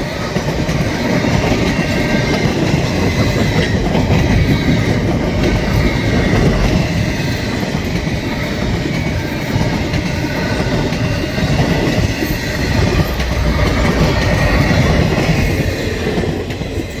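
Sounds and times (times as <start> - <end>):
freight train wheels clattering: 0.0 - 17.0.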